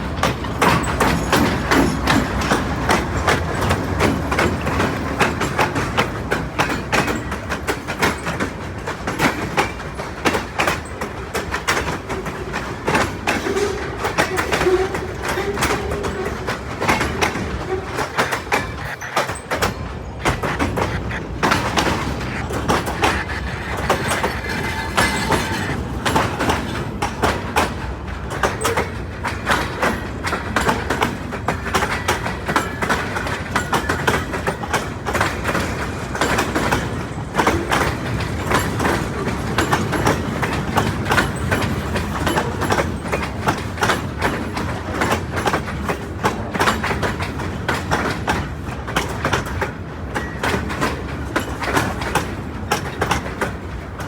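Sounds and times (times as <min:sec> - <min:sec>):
rumbling of train cars: 0:00.0 - 0:54.0
train wheels clattering over rail joints: 0:00.0 - 0:54.0.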